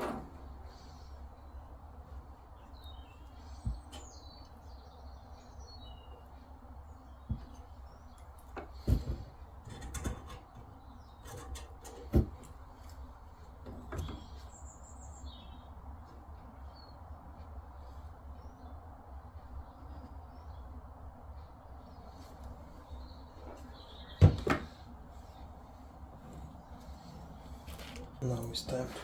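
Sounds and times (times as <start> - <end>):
birds chirping: 0.5 - 29.0
plumbing tools knocking and clicking: 8.4 - 12.6, 13.6 - 14.3.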